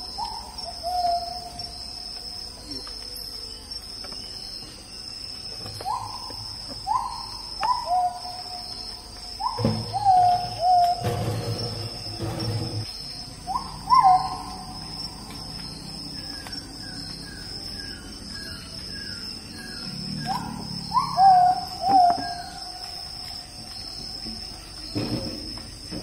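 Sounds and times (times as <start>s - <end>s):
bird whistling swooping notes: 9.4s - 14.9s, 15.6s - 22.6s.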